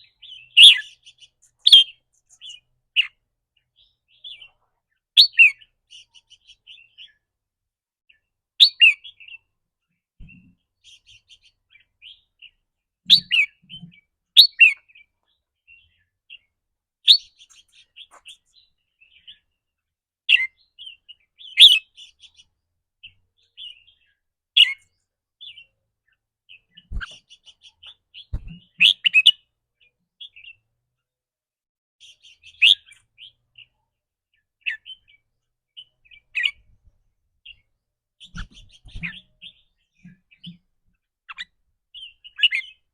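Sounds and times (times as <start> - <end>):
sharp short bird calls: 0.0 - 3.2, 26.8 - 29.4
bird twittering: 0.2 - 3.2, 26.6 - 29.4, 32.2 - 33.7.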